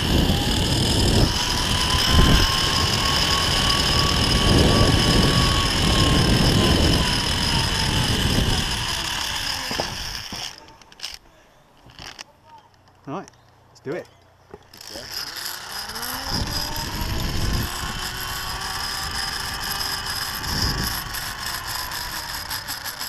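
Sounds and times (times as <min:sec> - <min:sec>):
rushing wind: 0:00.0 - 0:10.4, 0:15.6 - 0:23.0
zip-line pulley whine: 0:00.0 - 0:11.2, 0:14.7 - 0:23.0.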